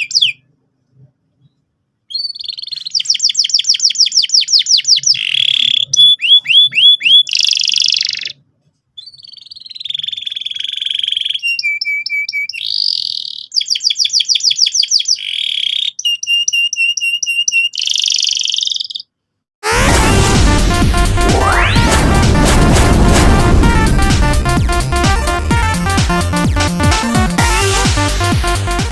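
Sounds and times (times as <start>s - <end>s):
canary singing trills: 0.0s - 0.5s, 1.4s - 8.4s, 9.0s - 19.2s.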